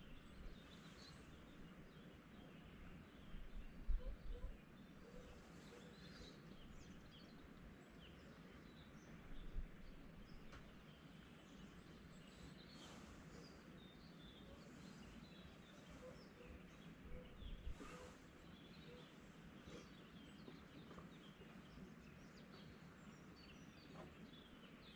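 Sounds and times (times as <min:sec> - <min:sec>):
faint bird chirps: 0:00.0 - 0:24.9.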